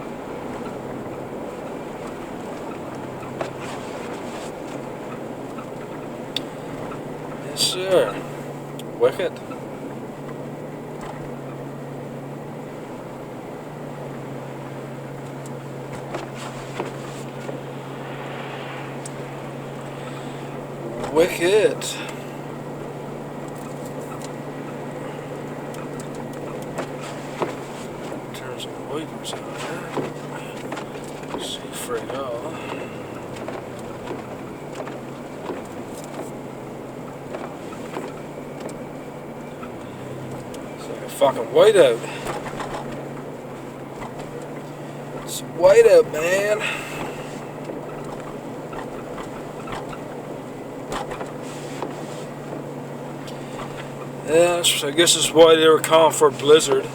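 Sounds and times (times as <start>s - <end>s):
car engine hum: 0.0s - 56.9s
road noise rushing hiss: 1.8s - 5.5s, 14.0s - 47.8s, 51.2s - 56.9s.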